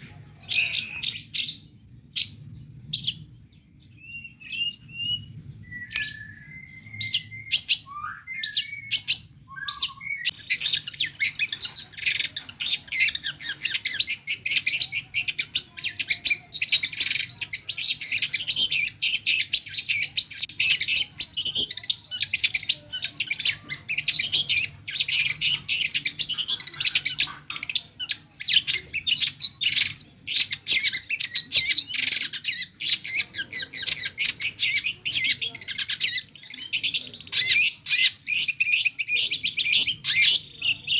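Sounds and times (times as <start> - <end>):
shrike singing: 0.0 - 3.4.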